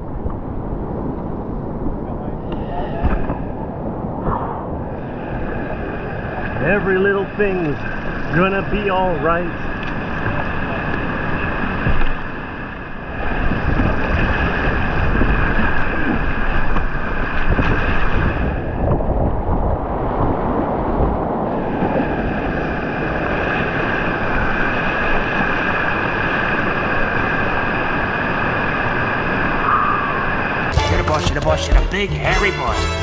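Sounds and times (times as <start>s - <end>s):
wind buffeting microphone: 13.1s - 25.0s.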